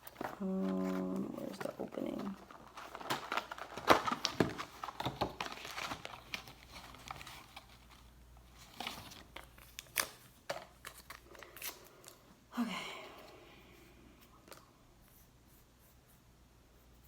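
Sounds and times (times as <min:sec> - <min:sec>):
box packaging tearing and crinkling: 0:00.0 - 0:11.8.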